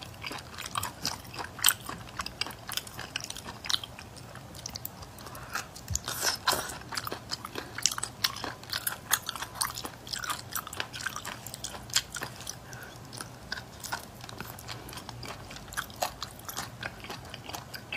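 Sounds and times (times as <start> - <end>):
chewing and lip smacks: 0.0 - 17.9.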